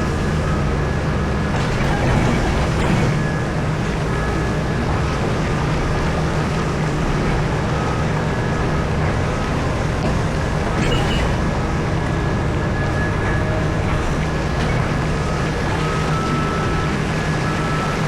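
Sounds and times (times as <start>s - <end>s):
excavator engine droning: 0.0s - 18.0s
sharp machinery clatter: 1.5s - 3.5s.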